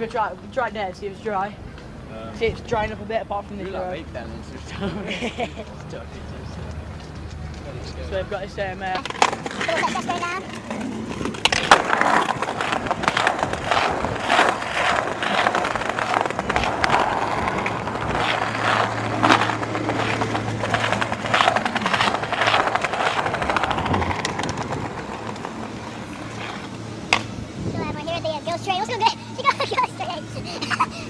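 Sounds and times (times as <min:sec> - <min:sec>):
skateboard rolling over pavement: 0:05.8 - 0:30.1
skateboard wheels clacking: 0:08.6 - 0:27.3.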